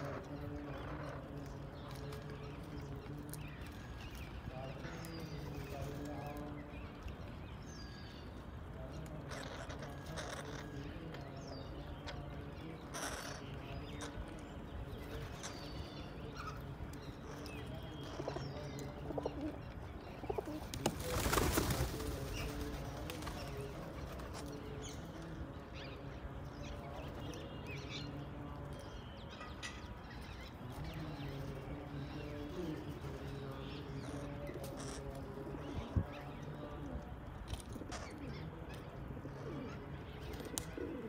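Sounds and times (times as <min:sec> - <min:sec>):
birds cooing: 0:00.0 - 0:29.1, 0:30.4 - 0:41.0.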